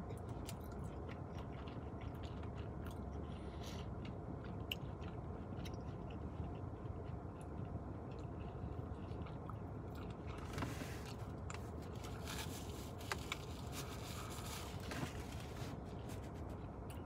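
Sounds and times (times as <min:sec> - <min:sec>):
person chewing pizza: 0:00.0 - 0:17.0
paper napkin crackling: 0:10.5 - 0:16.6.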